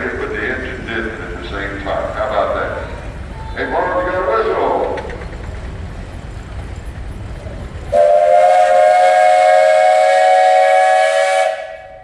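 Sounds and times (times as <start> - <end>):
steam whistle chord: 7.9 - 12.0.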